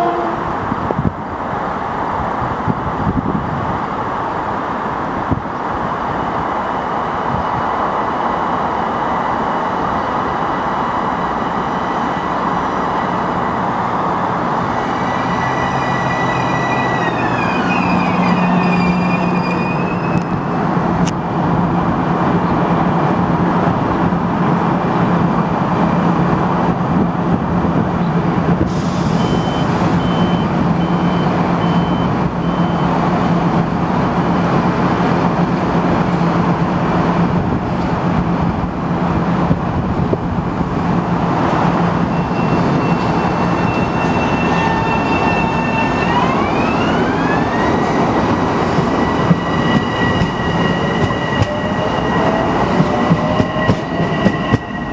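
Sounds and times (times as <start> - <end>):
train rumbling through station: 0.0 - 54.9
train motor whine: 14.6 - 20.5, 42.1 - 54.9.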